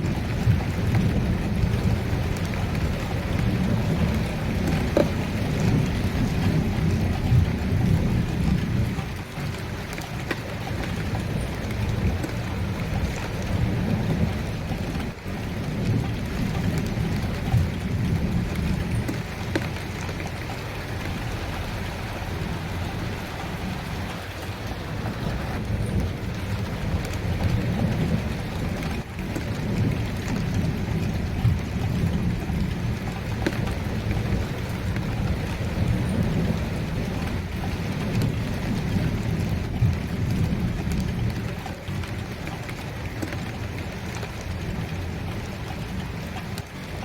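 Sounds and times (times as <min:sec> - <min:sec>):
low rumble of thunder: 0:00.0 - 0:47.0
steady rain falling: 0:00.0 - 0:47.0.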